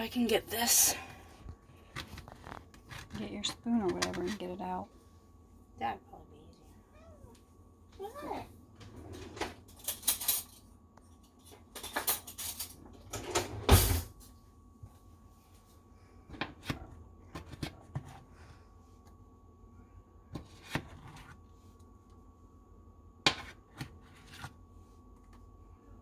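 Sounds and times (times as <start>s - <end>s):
utensils clinking on plates: 9.4s - 10.6s, 11.4s - 14.1s.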